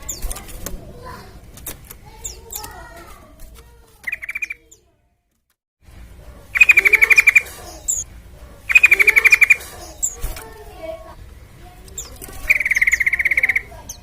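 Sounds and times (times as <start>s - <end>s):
bird chattering trills: 4.0s - 4.8s, 6.4s - 10.4s, 11.9s - 14.0s.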